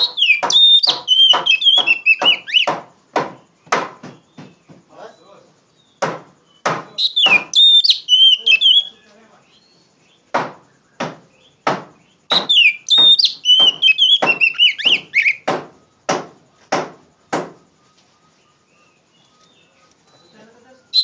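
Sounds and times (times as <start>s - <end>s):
bird singing whistled phrases: 0.0s - 2.8s, 4.1s - 9.9s, 12.2s - 16.0s, 17.6s - 21.0s
sharp knocks: 0.0s - 4.9s, 6.0s - 7.6s, 10.3s - 17.6s.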